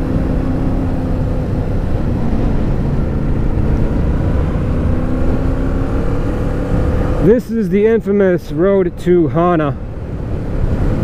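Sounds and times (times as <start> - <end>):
wind rush on microphone: 0.0 - 7.2, 9.8 - 11.0
motorcycle engine running: 0.0 - 7.4.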